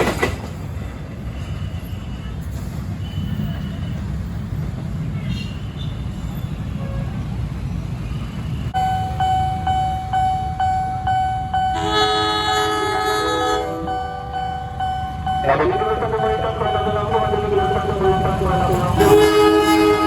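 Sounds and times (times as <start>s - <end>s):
train rumbling past: 0.0s - 20.0s
warning bell dinging: 8.8s - 19.5s
locomotive multi-note horn: 11.7s - 20.0s.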